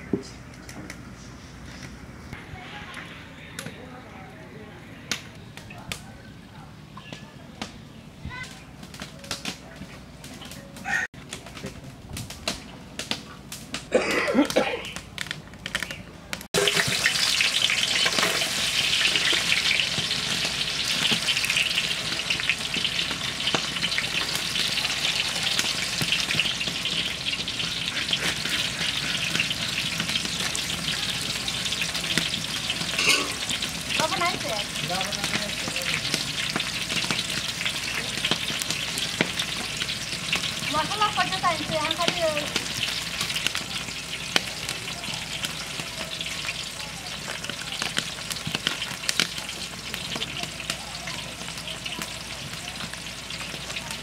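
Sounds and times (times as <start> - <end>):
onions sizzling in oil: 16.5 - 54.0.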